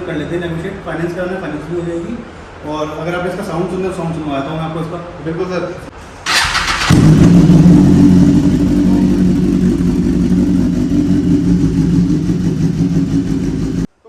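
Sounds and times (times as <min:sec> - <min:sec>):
motorcycle engine idling: 0:06.3 - 0:13.9.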